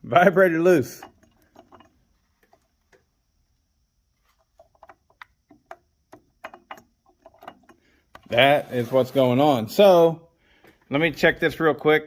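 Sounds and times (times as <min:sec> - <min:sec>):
hands handling chainsaw parts: 0:00.8 - 0:03.3, 0:04.1 - 0:09.2.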